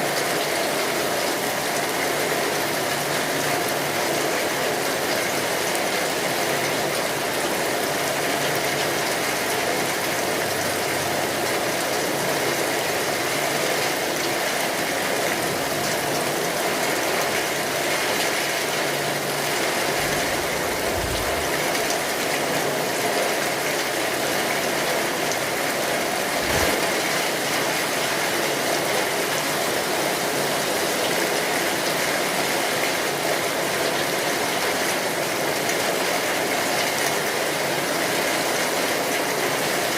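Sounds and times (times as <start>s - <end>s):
steady rainfall: 0.0s - 39.9s
low thumps: 20.0s - 22.1s.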